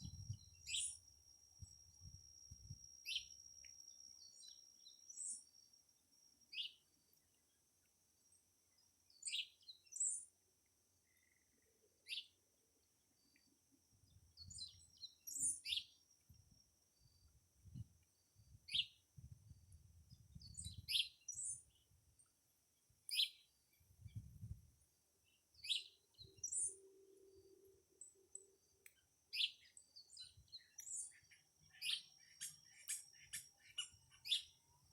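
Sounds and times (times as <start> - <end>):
birds chirping: 29.3 - 34.6.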